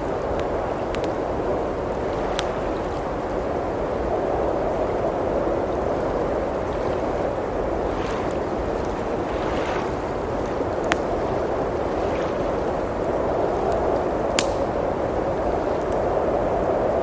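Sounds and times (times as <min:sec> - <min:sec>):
blizzard wind rushing: 0:00.0 - 0:17.0
wood fire crackling: 0:00.0 - 0:17.0
sharp pops from fire: 0:14.3 - 0:14.9.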